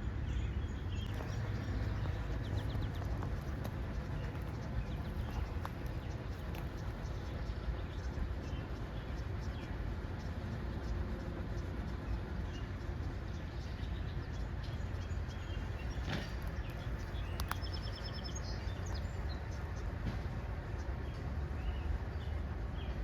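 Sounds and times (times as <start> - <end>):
small birds chirping: 0.2 - 20.0
low rumble: 0.5 - 9.0.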